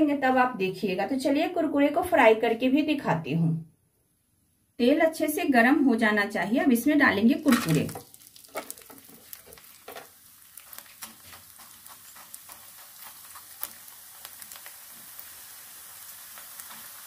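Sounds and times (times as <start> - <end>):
dough deep-frying in oil: 6.7 - 17.0.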